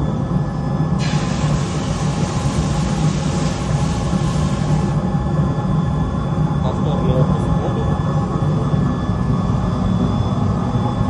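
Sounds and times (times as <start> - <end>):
hot glass hissing in water: 1.0 - 5.0.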